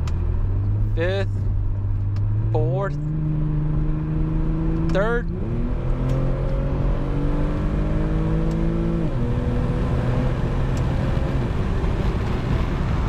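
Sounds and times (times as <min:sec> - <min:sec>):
car engine accelerating: 0:00.0 - 0:13.0
road and wind noise: 0:00.0 - 0:13.0.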